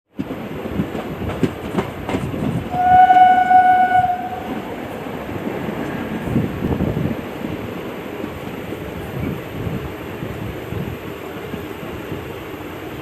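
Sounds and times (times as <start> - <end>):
train wheels clacking on rails: 0.1 - 13.0
train horn blast: 2.7 - 4.7.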